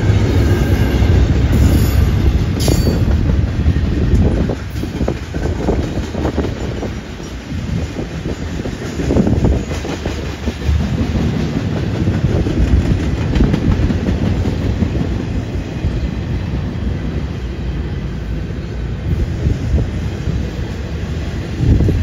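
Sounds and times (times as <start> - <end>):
steel wheels rumbling on rail: 0.0 - 22.0
wheels clickety-clack: 1.2 - 16.0.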